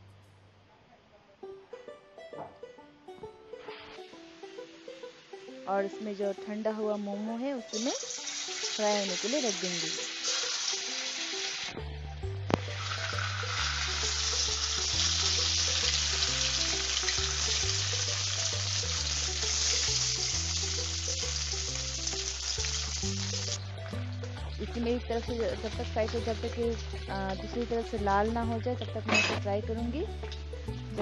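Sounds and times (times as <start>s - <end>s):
food sizzling in hot oil: 4.0s - 6.2s, 7.4s - 11.8s, 12.5s - 28.7s
background music with bass line: 10.6s - 31.0s.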